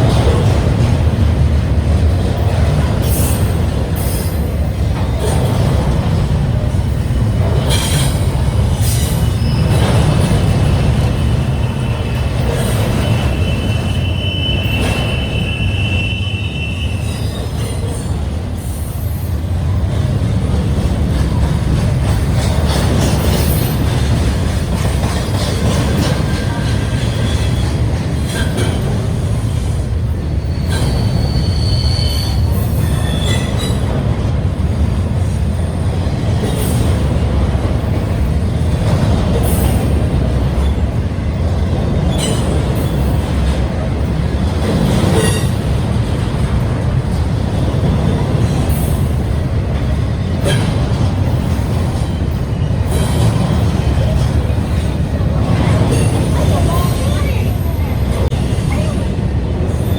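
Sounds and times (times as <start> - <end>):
freight train rumbling past: 0.0 - 59.9
high wheel squeal: 7.7 - 17.9, 30.3 - 33.9.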